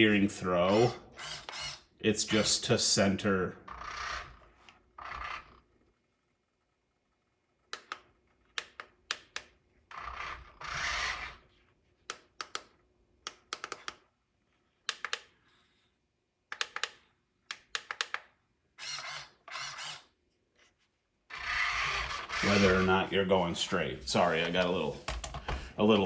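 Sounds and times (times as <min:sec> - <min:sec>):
servo motor whirring: 0:00.7 - 0:02.6, 0:09.9 - 0:11.4, 0:18.8 - 0:20.1, 0:21.3 - 0:23.2
plastic transmitter clicks: 0:07.7 - 0:09.6, 0:12.1 - 0:14.0, 0:14.8 - 0:15.3, 0:16.5 - 0:18.3.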